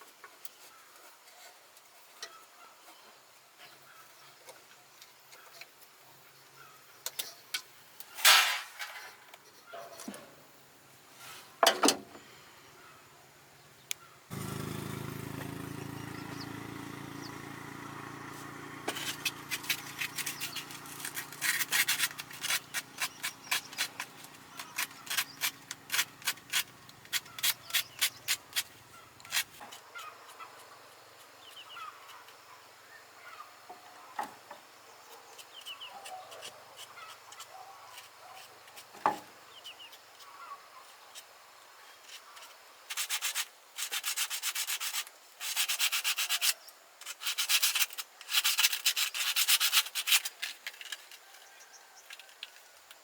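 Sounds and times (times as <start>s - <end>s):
hand scraping strokes: 11.1s - 11.6s, 18.3s - 30.6s, 42.1s - 51.0s
birds chirping: 12.1s - 34.2s.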